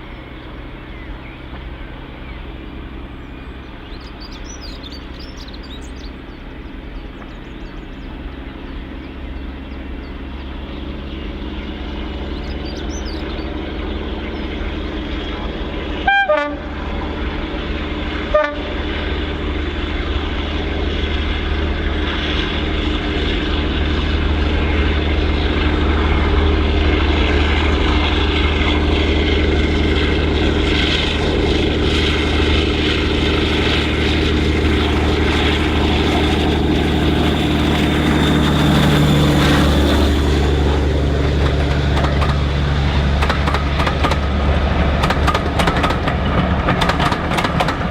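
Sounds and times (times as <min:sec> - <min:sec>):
diesel locomotive engine running: 0:00.0 - 0:47.9
locomotive horn blasts: 0:15.9 - 0:17.0, 0:18.2 - 0:19.4.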